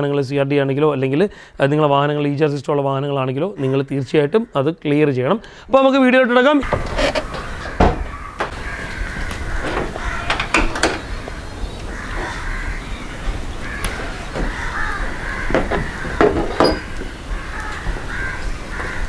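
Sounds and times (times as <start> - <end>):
crows cawing: 6.6 - 19.0
sharp clicks and knocks: 6.6 - 19.0.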